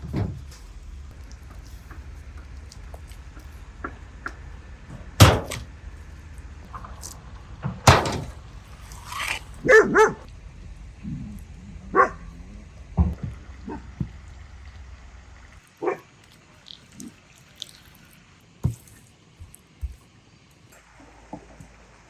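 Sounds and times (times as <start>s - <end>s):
sharp knocks: 5.2s - 5.6s
dog barking: 9.6s - 10.3s, 11.9s - 12.4s, 13.6s - 14.0s, 15.8s - 16.1s.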